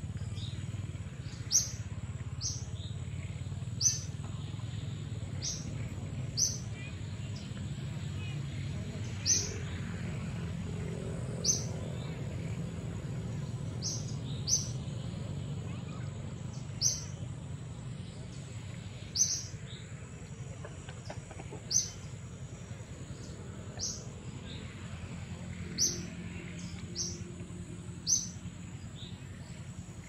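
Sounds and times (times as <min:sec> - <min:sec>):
low outdoor rumble: 0:00.0 - 0:30.0
bird chirping: 0:13.4 - 0:17.2, 0:18.2 - 0:19.9, 0:28.0 - 0:29.7.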